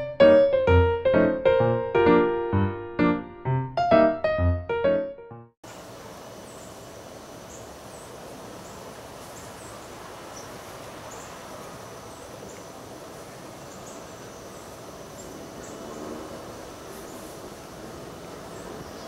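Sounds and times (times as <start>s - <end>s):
small birds chirping: 5.7s - 19.0s.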